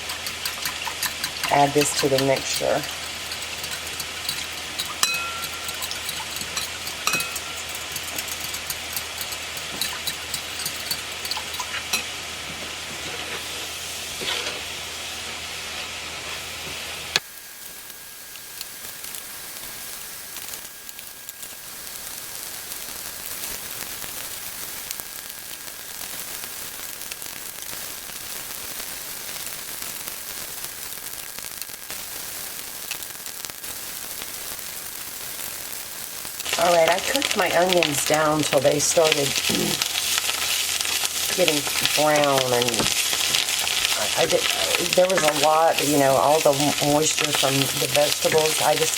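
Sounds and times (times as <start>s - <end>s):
stirring clicks: 0.0s - 12.0s, 36.4s - 48.9s
vegetables sizzling in butter: 0.0s - 48.9s.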